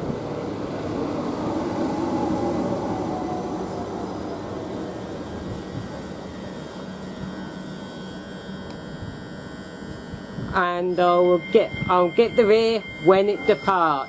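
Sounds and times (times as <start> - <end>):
low equipment hum: 0.0 - 13.2
electric train running noise: 0.0 - 14.0.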